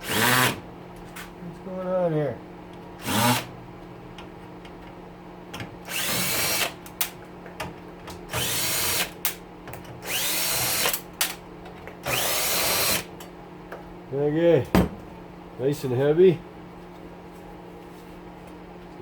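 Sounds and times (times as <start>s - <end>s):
power drill whirring: 0.0s - 0.6s, 3.0s - 3.5s, 5.9s - 6.8s, 8.3s - 9.1s, 10.0s - 11.0s, 12.0s - 13.1s
room fan humming: 0.0s - 19.0s.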